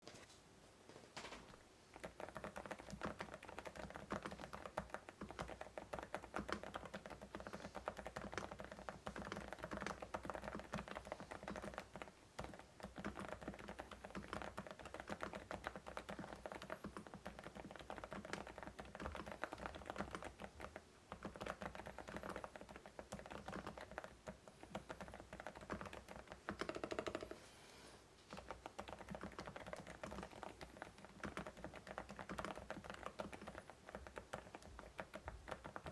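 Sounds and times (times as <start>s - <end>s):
fast typing on mechanical keyboard: 1.9s - 27.4s, 28.3s - 35.9s.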